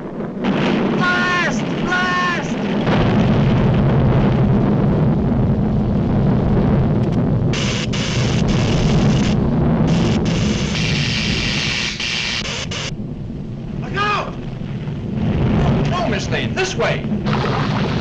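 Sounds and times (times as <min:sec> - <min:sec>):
deep rumble: 0:00.0 - 0:18.0
hiss: 0:07.6 - 0:12.9.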